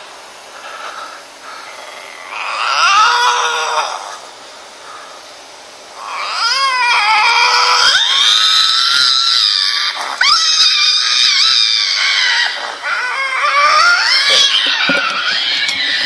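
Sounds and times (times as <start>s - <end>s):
lynx yowling: 1.9s - 4.2s, 6.0s - 16.0s.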